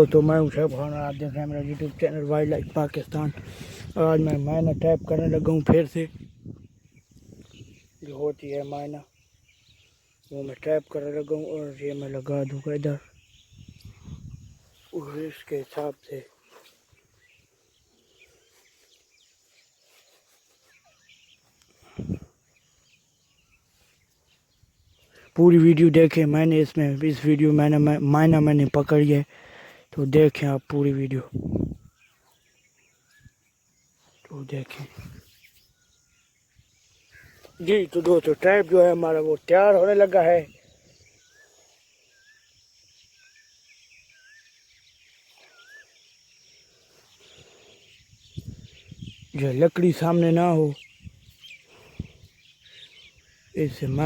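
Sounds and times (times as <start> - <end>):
insect drone: 0.0 - 54.0
small bird chirps: 6.2 - 25.3, 30.6 - 54.0.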